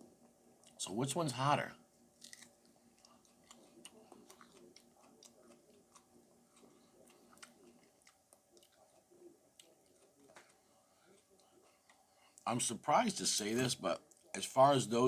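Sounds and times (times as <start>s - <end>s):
mouth sounds chewing: 2.2s - 12.5s.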